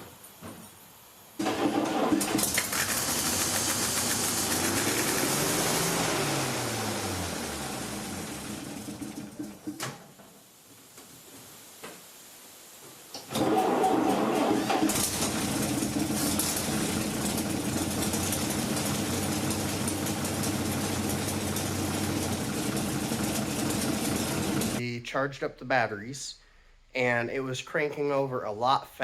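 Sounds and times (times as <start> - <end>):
truck starter cranking engine: 1.4 - 9.6, 13.3 - 24.8.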